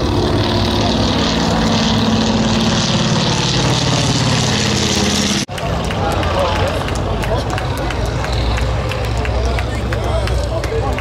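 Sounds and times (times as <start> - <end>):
propeller plane engines droning: 0.0 - 11.0.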